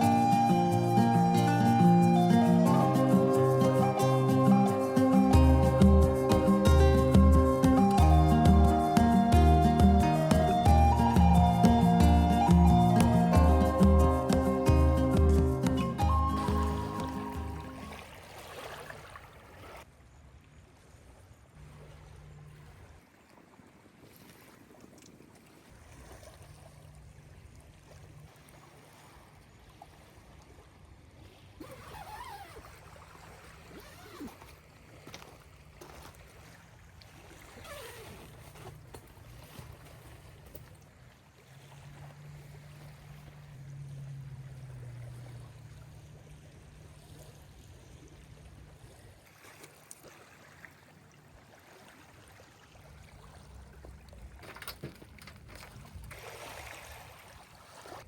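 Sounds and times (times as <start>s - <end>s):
faint gliding calls: 0.0s - 18.5s
light water sounds: 0.0s - 58.0s.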